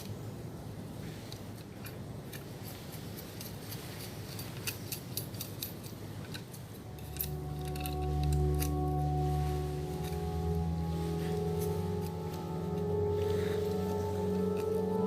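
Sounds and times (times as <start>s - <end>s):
held background music chord: 6.8s - 15.0s.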